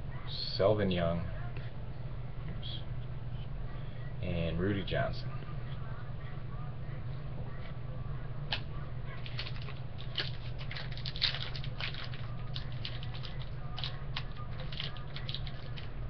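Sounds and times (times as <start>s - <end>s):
trading cards being shuffled: 9.2s - 16.0s.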